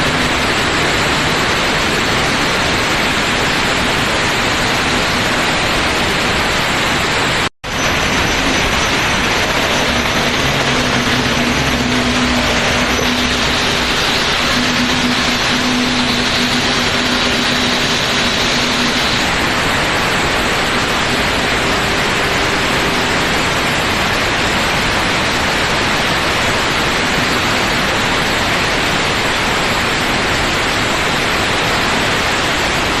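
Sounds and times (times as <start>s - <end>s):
welding arc crackling hiss: 7.7s - 29.1s.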